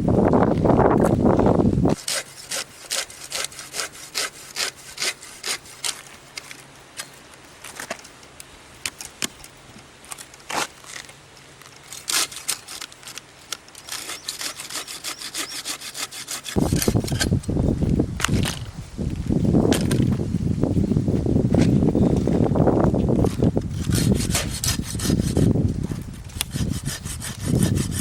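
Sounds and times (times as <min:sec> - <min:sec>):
hand saw cutting wood: 0:01.9 - 0:06.5, 0:11.9 - 0:13.2, 0:13.8 - 0:17.4, 0:23.7 - 0:28.0.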